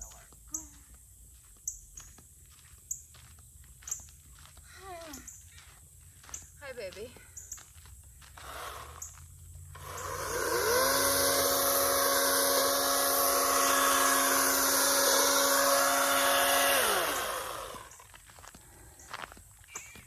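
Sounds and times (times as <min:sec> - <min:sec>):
electric chainsaw running: 0:08.4 - 0:18.0.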